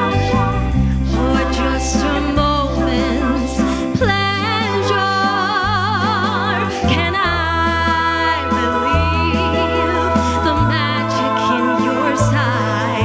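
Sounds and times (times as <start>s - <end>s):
band with bass line: 0.0s - 13.0s
singer holding vibrato notes: 0.0s - 13.0s.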